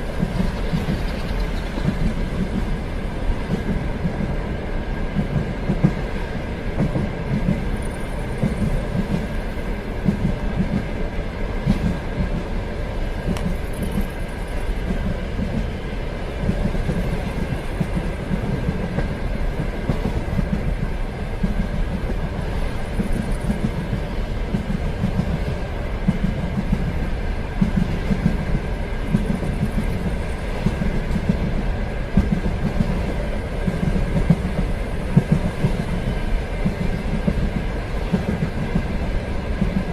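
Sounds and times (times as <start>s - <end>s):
train wheels clattering: 0.0s - 4.4s, 5.1s - 11.0s, 13.1s - 15.8s, 16.4s - 39.9s
train rumbling along track: 0.0s - 39.9s.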